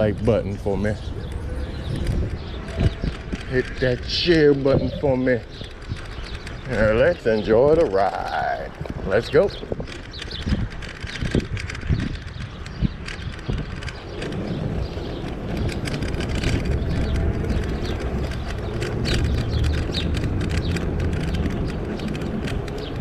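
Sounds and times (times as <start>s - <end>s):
bike clicks and rattles: 0.0s - 23.0s
wind and road rumble: 0.0s - 23.0s.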